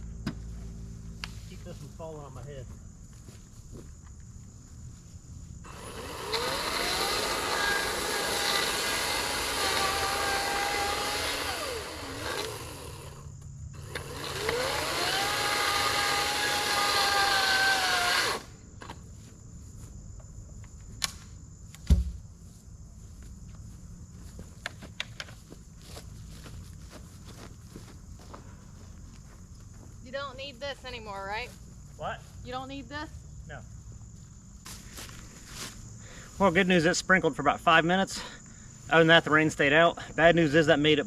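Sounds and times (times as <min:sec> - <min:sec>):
reciprocating saw cutting wood: 0:05.7 - 0:18.5
heavy thump: 0:21.8 - 0:22.3.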